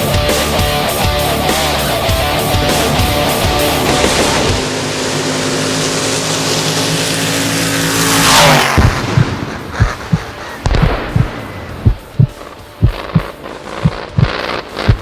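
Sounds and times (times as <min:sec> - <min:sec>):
heavy rushing noise: 0:00.0 - 0:15.0
loud sweeping rush: 0:00.0 - 0:15.0
engine at high revs: 0:01.5 - 0:15.0
low thumps: 0:08.7 - 0:15.0.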